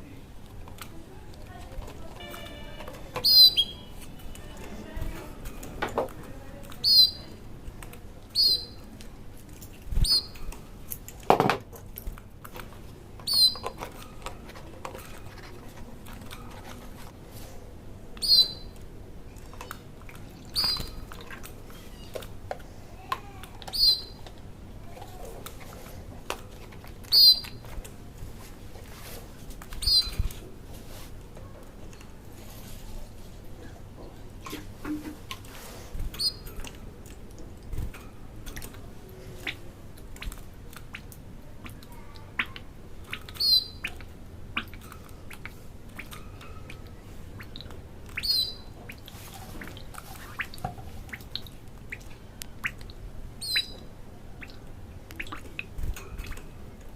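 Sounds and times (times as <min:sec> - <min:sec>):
small bird chirping: 0:02.2 - 0:04.3, 0:06.8 - 0:07.3, 0:08.4 - 0:08.8, 0:10.0 - 0:10.4, 0:13.3 - 0:13.7, 0:18.2 - 0:18.7, 0:20.5 - 0:21.1, 0:23.7 - 0:24.2, 0:27.1 - 0:27.6, 0:29.8 - 0:30.3, 0:36.2 - 0:36.5, 0:41.7 - 0:44.0, 0:47.4 - 0:48.8, 0:53.4 - 0:54.6.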